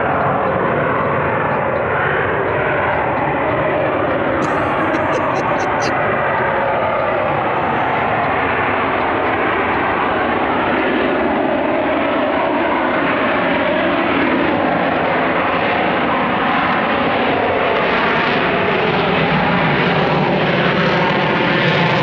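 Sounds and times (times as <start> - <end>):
jet engine roar: 5.9 - 22.0.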